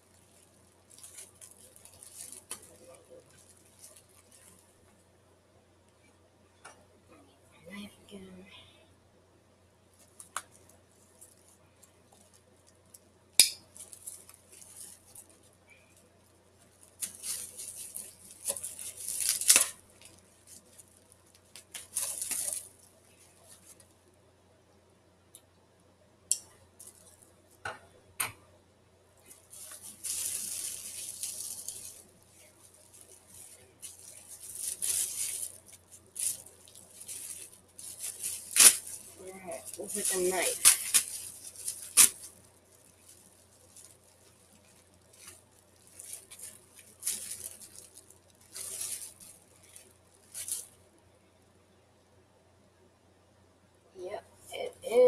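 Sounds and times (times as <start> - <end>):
wrapping crinkling and rustling: 0.0 - 5.2, 9.8 - 24.2, 26.3 - 27.6, 29.2 - 51.1.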